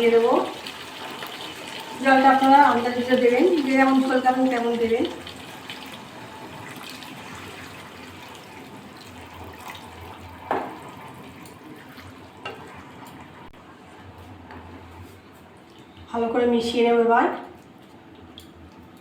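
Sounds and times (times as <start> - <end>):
water pouring into a pan: 0.0 - 13.0.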